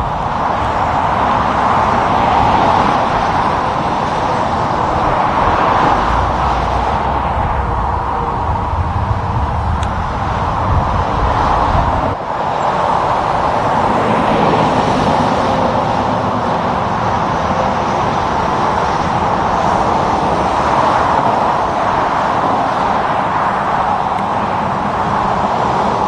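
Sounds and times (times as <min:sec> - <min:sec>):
heavy low rumble: 0:00.0 - 0:12.2
highway traffic passing: 0:00.0 - 0:26.0.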